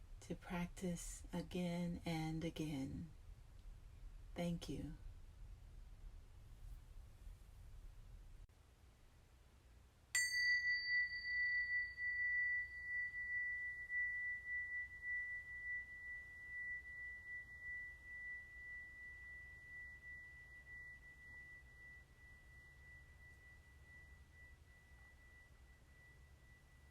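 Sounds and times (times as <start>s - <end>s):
metal bell struck: 10.2s - 26.9s.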